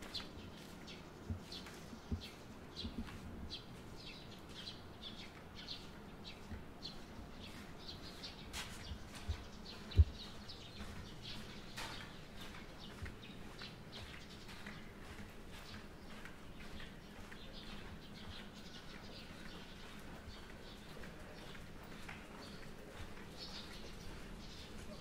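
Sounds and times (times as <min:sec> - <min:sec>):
small birds chirping: 0:00.0 - 0:25.0
low thuds: 0:09.3 - 0:10.2.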